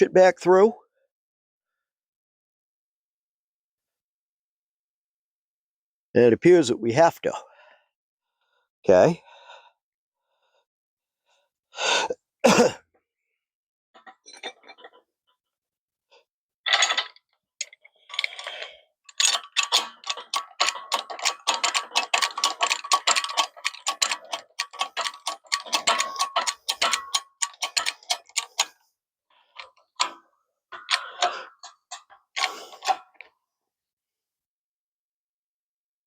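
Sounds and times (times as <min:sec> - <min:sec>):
metal clanks: 0:16.7 - 0:28.8, 0:29.6 - 0:33.2
ratchet wrench clicking: 0:17.6 - 0:28.8, 0:30.8 - 0:33.0.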